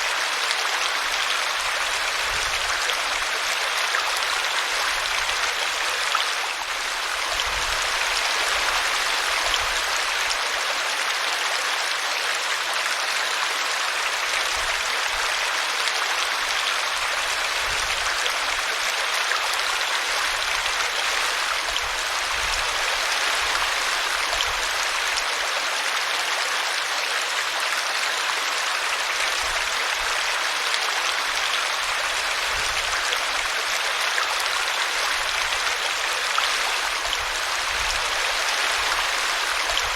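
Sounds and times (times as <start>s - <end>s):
brook water splashing: 28.9s - 39.9s.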